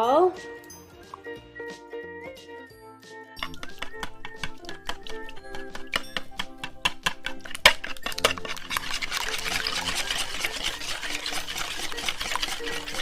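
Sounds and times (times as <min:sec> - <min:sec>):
electric hand mixer whirring: 0:03.4 - 0:13.0
wet churning slime: 0:03.4 - 0:13.0.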